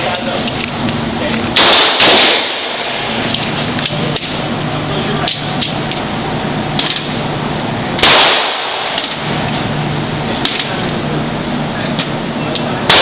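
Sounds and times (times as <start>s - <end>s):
low hum: 0.0s - 13.0s
loud gunshot: 1.6s - 3.1s, 8.0s - 9.0s.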